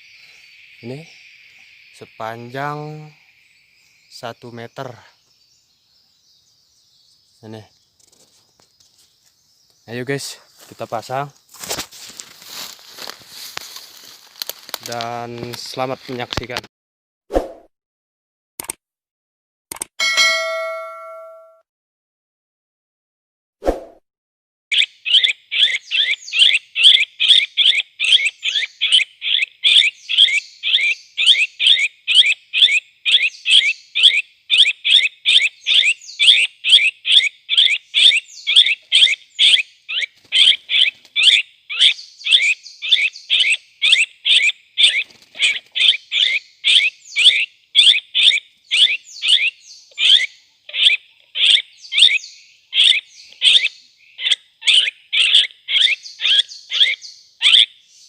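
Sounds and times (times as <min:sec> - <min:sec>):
short pitched bird calls: 0:24.7 - 0:58.0.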